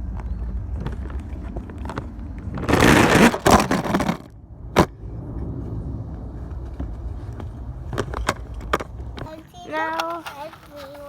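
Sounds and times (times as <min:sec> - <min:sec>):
loud scraping rush: 0:01.2 - 0:09.6
toy truck rumbling down a slide: 0:01.9 - 0:04.3.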